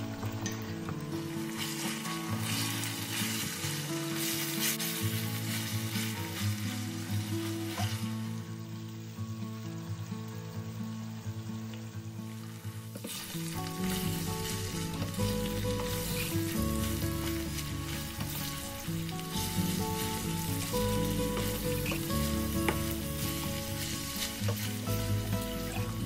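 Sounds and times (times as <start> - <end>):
background music: 0.0 - 9.2, 12.4 - 26.0
chicken sizzling in a pan: 0.0 - 26.0
wooden spatula stirring: 0.1 - 8.1, 12.9 - 26.0
spatula tapping pan: 13.0 - 25.4.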